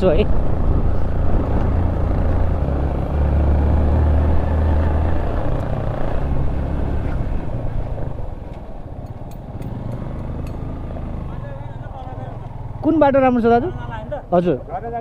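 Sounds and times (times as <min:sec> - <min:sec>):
wind and road rush: 0:00.0 - 0:15.0
motorcycle engine running: 0:08.9 - 0:14.8.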